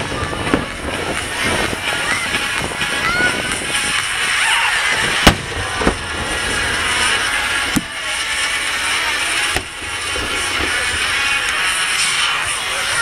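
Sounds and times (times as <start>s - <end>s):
steady background noise: 0.0s - 13.0s
firework shells bursting: 4.8s - 12.6s.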